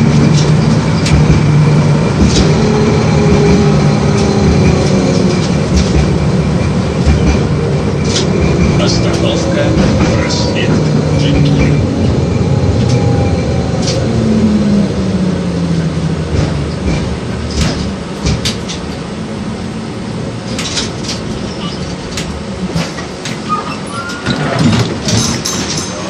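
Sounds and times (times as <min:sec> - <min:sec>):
low motor hum: 0:00.0 - 0:20.4
tram wheels rumbling on rails: 0:00.0 - 0:26.0.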